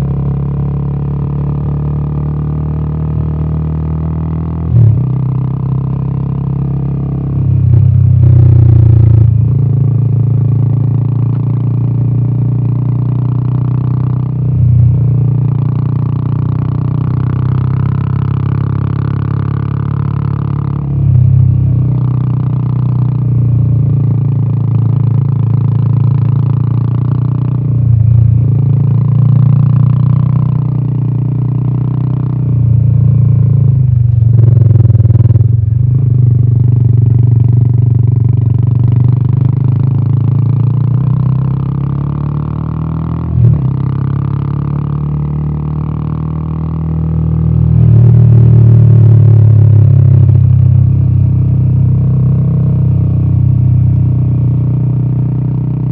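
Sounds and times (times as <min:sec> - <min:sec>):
motorcycle engine and exhaust: 0:00.0 - 0:55.9.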